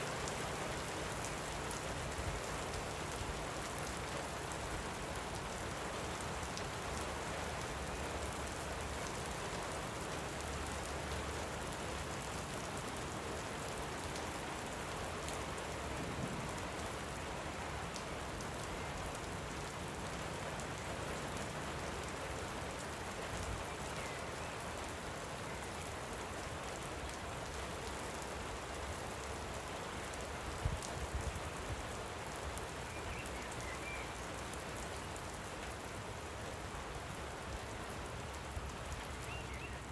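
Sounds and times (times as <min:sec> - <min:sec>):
light rain pattering: 0:00.0 - 0:39.9
faint bird chirps: 0:32.8 - 0:34.2.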